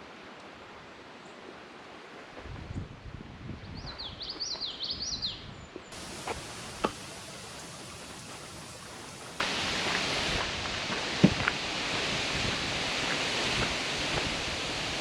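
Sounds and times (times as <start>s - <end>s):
steady outdoor hiss: 5.9s - 15.0s
low wind rumble: 6.0s - 15.0s.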